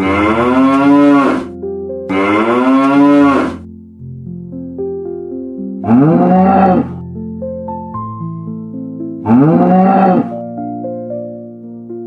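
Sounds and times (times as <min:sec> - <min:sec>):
cow mooing: 0:00.0 - 0:01.5, 0:02.1 - 0:03.6, 0:05.9 - 0:07.0, 0:09.3 - 0:10.3
light background music: 0:00.0 - 0:12.0.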